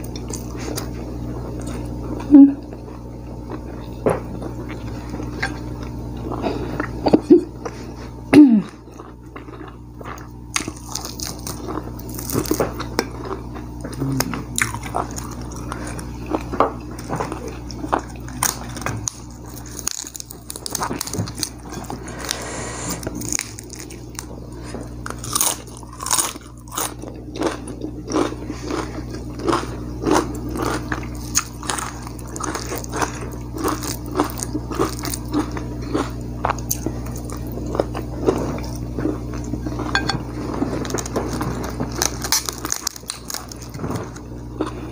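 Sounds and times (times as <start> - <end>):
person chewing crunchy food: 0.0 - 44.9.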